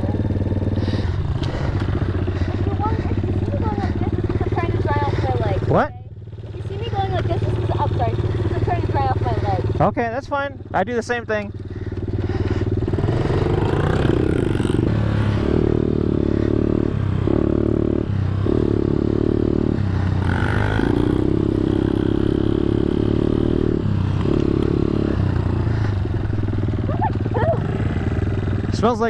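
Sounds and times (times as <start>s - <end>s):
pit bike engine running: 0.0s - 29.0s.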